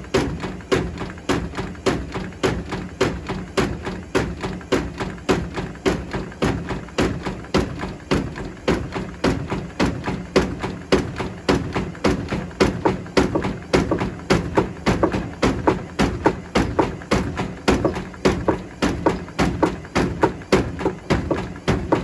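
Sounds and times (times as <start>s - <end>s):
washing machine low hum: 0.0s - 22.0s
bricks thudding in washing machine: 4.2s - 22.0s.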